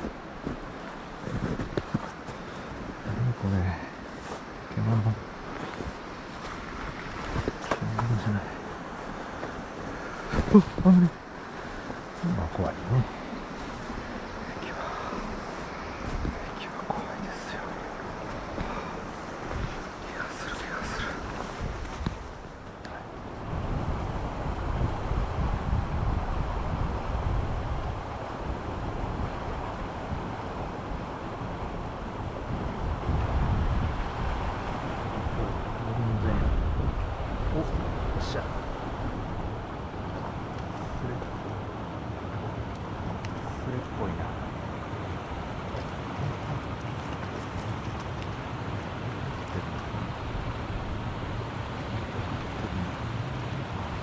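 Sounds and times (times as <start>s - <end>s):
stream water rushing: 0.0s - 54.0s
wind rumbling on microphone: 0.0s - 54.0s.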